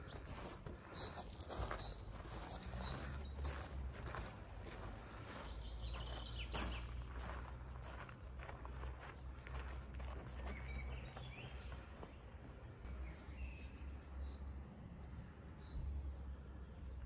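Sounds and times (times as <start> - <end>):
bird chirps: 8.7 - 12.2.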